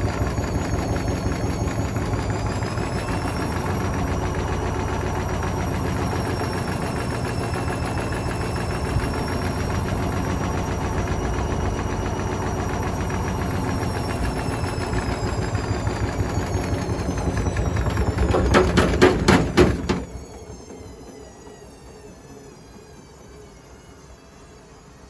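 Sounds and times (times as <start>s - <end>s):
washing machine motor whine: 0.0s - 25.0s
bricks banging against drum: 17.9s - 20.1s.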